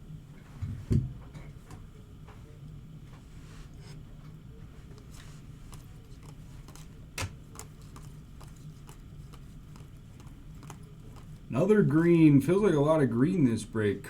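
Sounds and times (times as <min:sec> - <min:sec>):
low steady hum: 0:00.0 - 0:14.0
trading cards clicking: 0:05.7 - 0:11.3.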